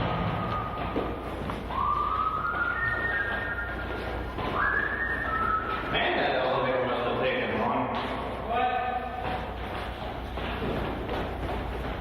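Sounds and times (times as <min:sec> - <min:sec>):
person whistling: 0:01.7 - 0:06.0.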